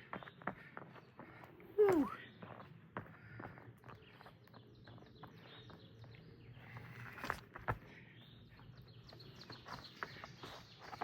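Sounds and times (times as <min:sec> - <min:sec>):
outdoor background noise: 0:00.0 - 0:11.0
bird chirping: 0:03.9 - 0:06.8, 0:08.1 - 0:11.0.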